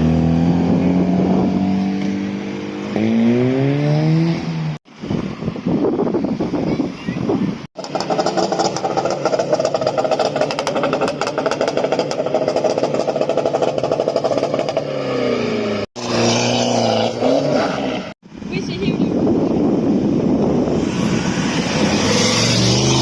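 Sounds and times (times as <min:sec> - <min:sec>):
car engine revving hard: 0:07.8 - 0:18.2, 0:20.7 - 0:23.0.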